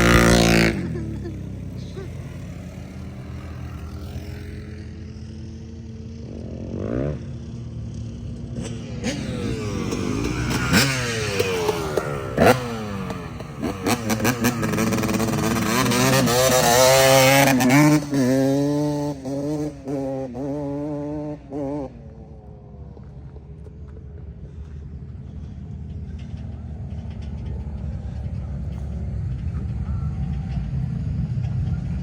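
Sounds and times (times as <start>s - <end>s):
off-road engines revving: 0.0s - 32.0s.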